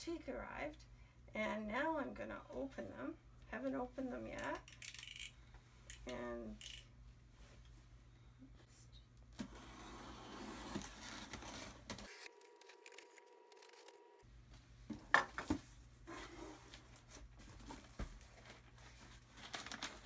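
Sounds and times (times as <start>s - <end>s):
packing tape tearing: 10.7s - 14.0s
paper rustling and crinkling: 16.2s - 20.0s.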